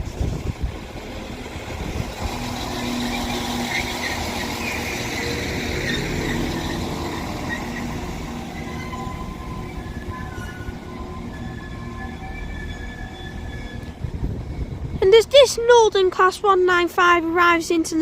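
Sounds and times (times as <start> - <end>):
wind gusts on microphone: 0.0 - 4.0, 13.4 - 15.8
train rumble and engine hum: 0.0 - 18.0
high-pitched squealing: 0.1 - 15.5.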